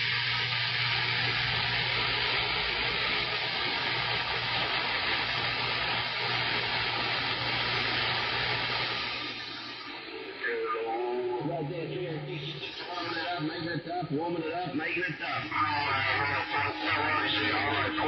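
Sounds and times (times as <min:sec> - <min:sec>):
radio static rush: 0:12.0 - 0:18.0.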